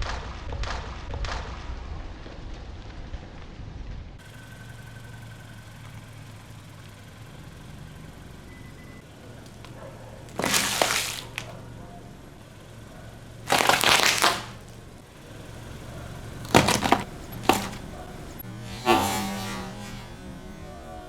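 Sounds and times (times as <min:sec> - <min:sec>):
tyre crushing crunchy objects: 0:10.3 - 0:11.5, 0:13.5 - 0:14.7, 0:16.1 - 0:19.0.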